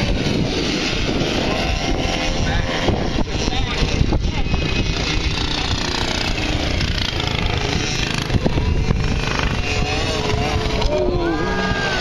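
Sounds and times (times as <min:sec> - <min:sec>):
racing motorcycle engines passing: 0:00.0 - 0:12.0.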